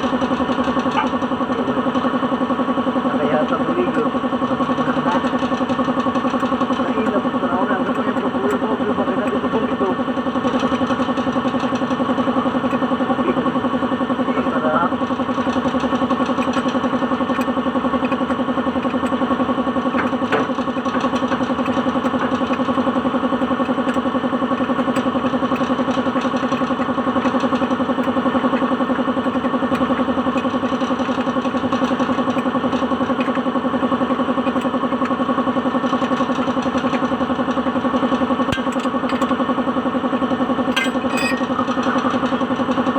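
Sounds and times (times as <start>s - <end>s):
car engine idling: 0.0s - 42.9s.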